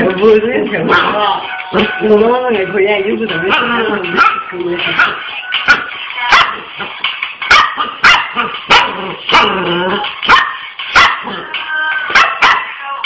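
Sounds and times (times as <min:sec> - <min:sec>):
dog barking: 0:00.9 - 0:01.2, 0:03.5 - 0:06.7, 0:07.5 - 0:11.5, 0:12.1 - 0:12.8.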